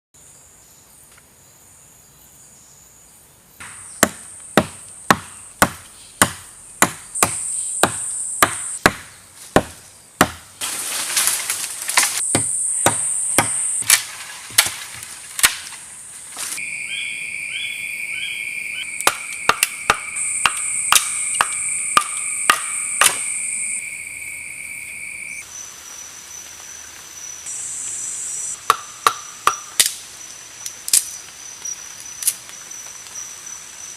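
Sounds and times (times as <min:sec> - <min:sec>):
wood being chopped: 0:03.6 - 0:15.8, 0:19.0 - 0:23.3, 0:28.6 - 0:30.0.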